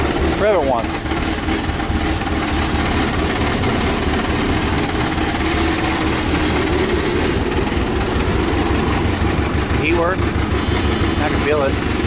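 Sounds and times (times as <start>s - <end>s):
car engine idling low: 0.0s - 12.0s.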